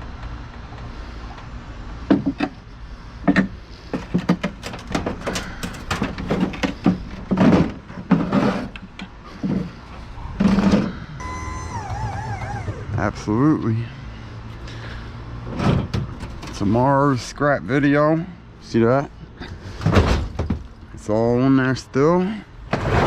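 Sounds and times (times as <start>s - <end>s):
low steady rumble: 9.3s - 17.1s.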